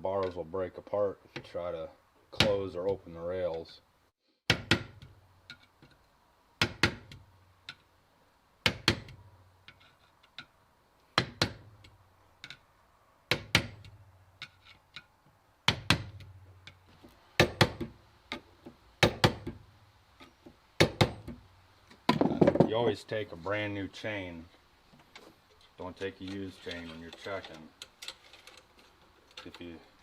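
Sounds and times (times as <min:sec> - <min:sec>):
hammer striking metal punch: 0:17.4 - 0:17.9.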